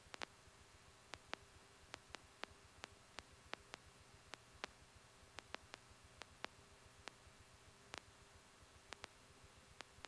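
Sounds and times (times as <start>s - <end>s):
faint radio hiss: 0.0s - 10.0s.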